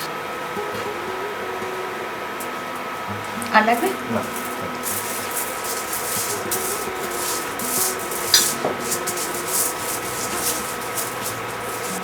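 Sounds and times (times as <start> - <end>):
rubbing aluminium foil: 3.2 - 12.0.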